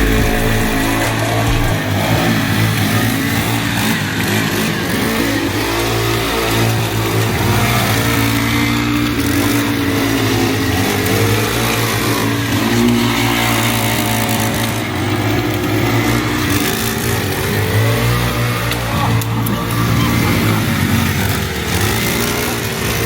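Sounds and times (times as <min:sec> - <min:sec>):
small petrol engine revving: 0:00.0 - 0:23.0.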